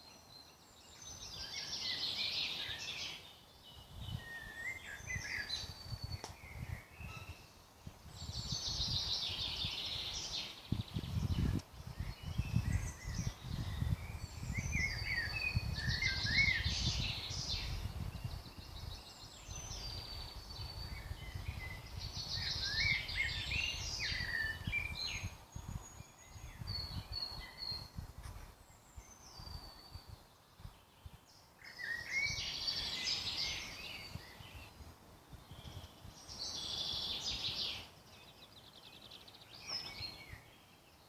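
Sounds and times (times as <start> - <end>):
birds singing whistles and trills: 0.0 - 41.0.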